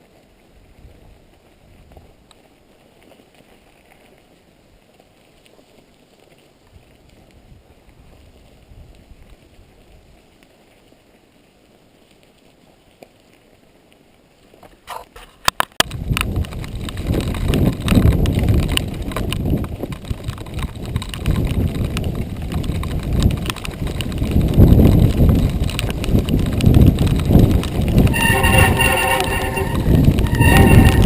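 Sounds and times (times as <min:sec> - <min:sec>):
wind on microphone: 0:06.7 - 0:10.2, 0:15.8 - 0:31.0
bike rattling: 0:14.9 - 0:31.0
bike tyres rumbling on dirt: 0:15.8 - 0:31.0.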